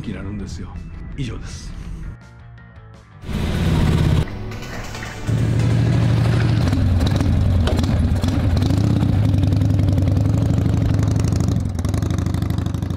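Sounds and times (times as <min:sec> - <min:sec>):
motorcycle engine running: 0:03.2 - 0:12.9.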